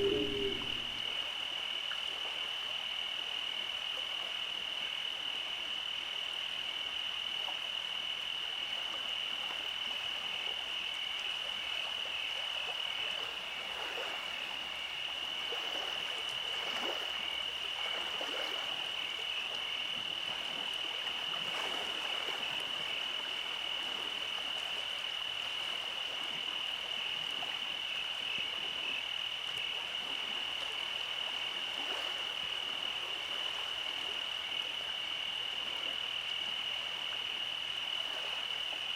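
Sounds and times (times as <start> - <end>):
high steady trill: 0.0 - 1.0
frogs croaking: 0.0 - 38.9.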